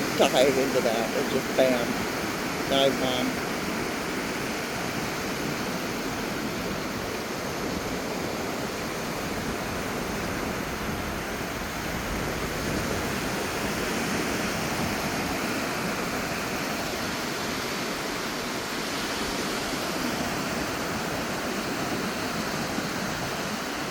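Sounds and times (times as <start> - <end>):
waves breaking on beach: 0.0 - 23.9.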